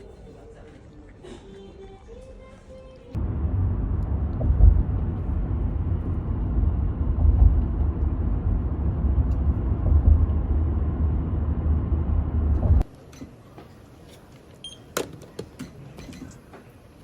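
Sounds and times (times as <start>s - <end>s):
moving vehicle rumble: 3.1s - 13.0s.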